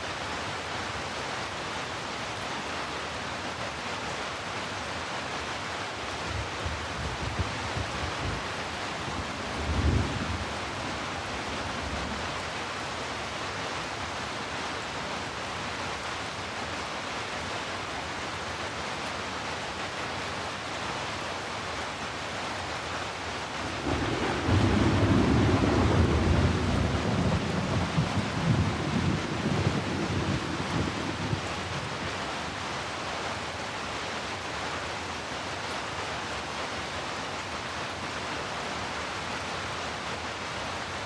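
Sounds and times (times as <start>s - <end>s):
heavy rain hissing: 19.2s - 41.0s
thunder rumbling: 23.6s - 32.0s.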